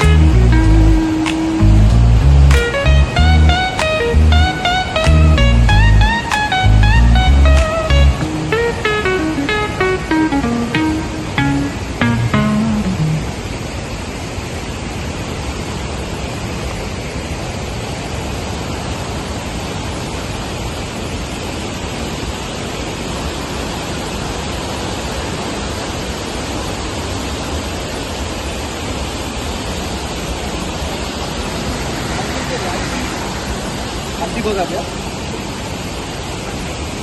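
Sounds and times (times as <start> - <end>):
heavy rain falling: 28.7 - 37.0.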